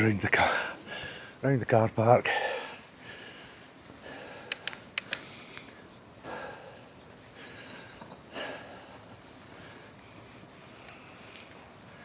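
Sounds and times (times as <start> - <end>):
bicycle clicks: 4.4 - 5.8.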